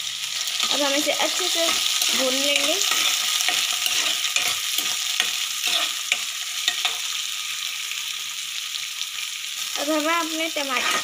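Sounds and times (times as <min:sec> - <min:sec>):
vegetables sizzling in hot oil: 0:00.0 - 0:11.0
metal skimmer scraping a pan: 0:01.7 - 0:07.0, 0:10.7 - 0:11.0.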